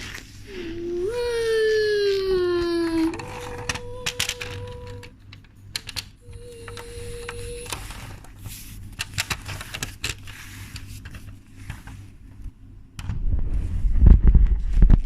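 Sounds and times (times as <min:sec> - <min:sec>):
low steady hum: 0:00.0 - 0:15.0
plastic toy train clicks: 0:03.1 - 0:06.1.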